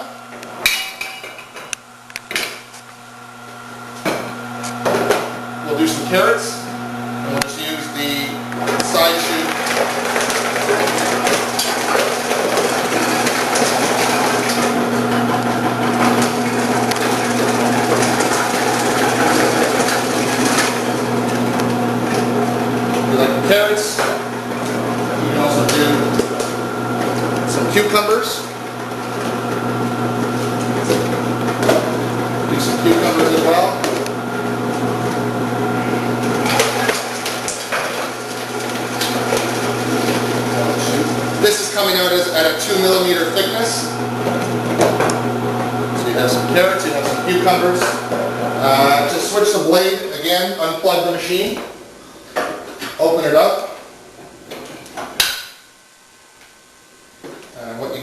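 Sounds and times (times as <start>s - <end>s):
vegetable cutter motor hum: 6.9s - 49.1s.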